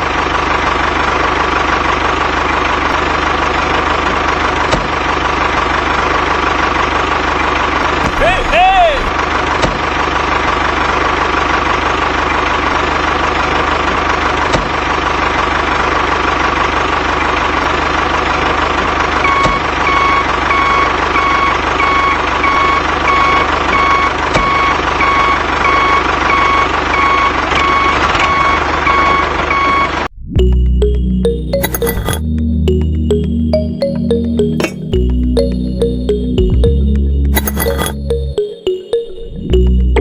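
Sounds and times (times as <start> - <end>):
engine running: 0.0 - 12.5, 30.4 - 40.0
reversing alarm beeping: 19.2 - 40.0.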